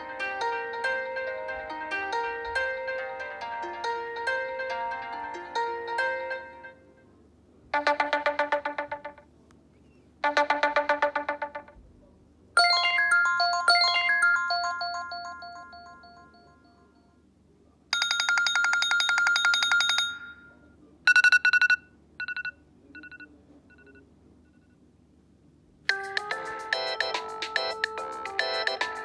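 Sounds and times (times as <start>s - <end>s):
melodic ringtone: 0.0s - 6.9s, 7.8s - 9.2s, 10.2s - 11.8s, 12.6s - 17.0s, 25.9s - 29.0s
phone chime: 7.8s - 9.2s, 12.6s - 17.0s, 18.0s - 24.0s
trill of electronic tones: 7.8s - 9.2s, 10.2s - 11.8s, 12.6s - 16.0s.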